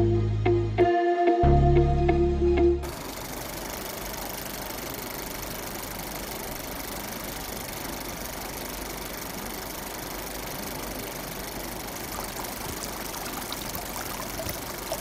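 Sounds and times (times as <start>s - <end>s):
music: 0.0s - 2.9s
small electric motor humming: 2.8s - 15.0s.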